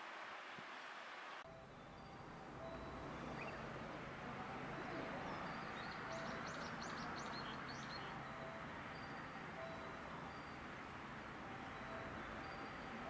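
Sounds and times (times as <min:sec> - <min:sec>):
bird chirping: 0:01.6 - 0:03.8, 0:04.7 - 0:10.8, 0:11.6 - 0:13.0.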